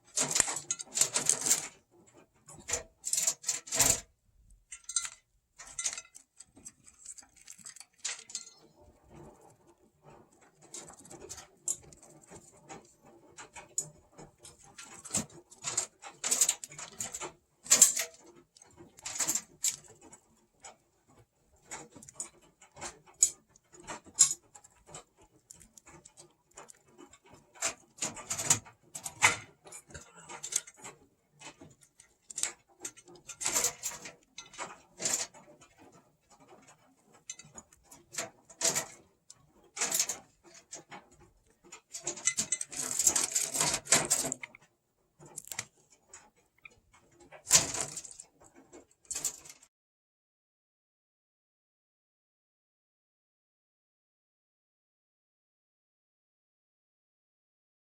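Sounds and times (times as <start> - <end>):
budgies crunching carrot: 45.3 - 45.8.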